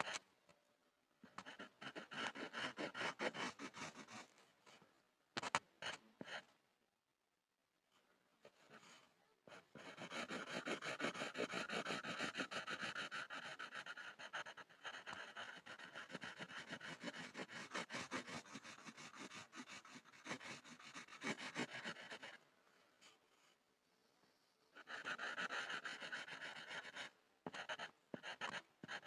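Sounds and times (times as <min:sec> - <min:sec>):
pencil scribbling on a board: 0:01.3 - 0:04.4, 0:08.5 - 0:22.4, 0:24.8 - 0:29.0.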